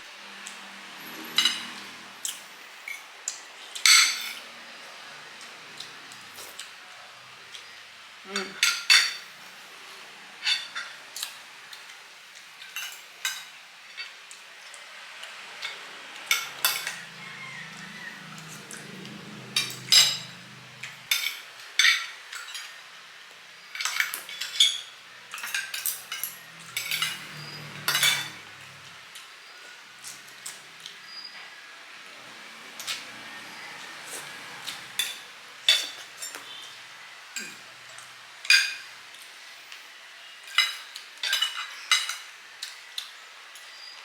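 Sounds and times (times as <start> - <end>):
cutlery clinking on plates: 1.1 - 3.1, 3.8 - 4.5, 8.4 - 9.3, 15.6 - 18.7, 19.4 - 22.8, 23.7 - 28.8, 34.6 - 36.6, 37.4 - 37.7, 40.4 - 43.1.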